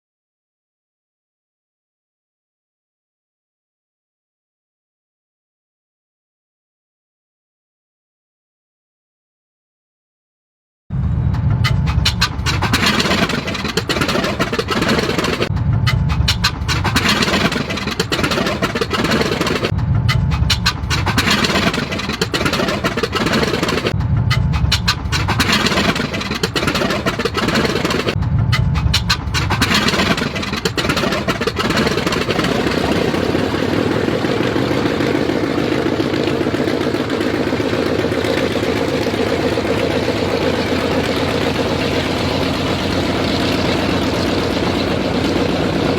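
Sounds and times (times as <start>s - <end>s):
piston aircraft engines: 10.9s - 45.9s.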